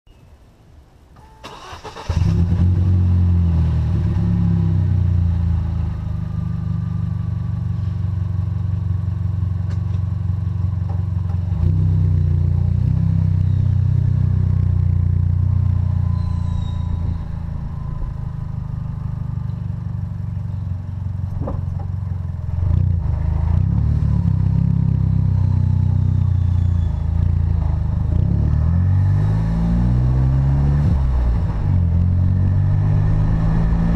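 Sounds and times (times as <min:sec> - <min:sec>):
car engine cranking and starting: 0:01.2 - 0:03.3, 0:14.3 - 0:23.7.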